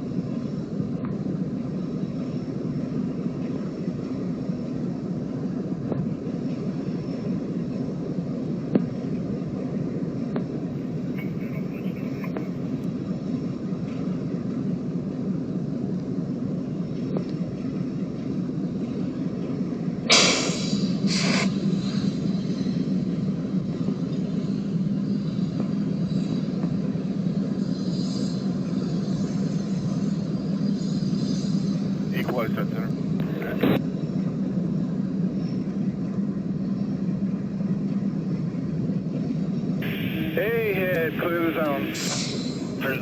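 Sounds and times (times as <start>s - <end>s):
diesel locomotive engine rumbling: 0.0s - 43.0s
short bursts of hiss: 20.1s - 21.5s.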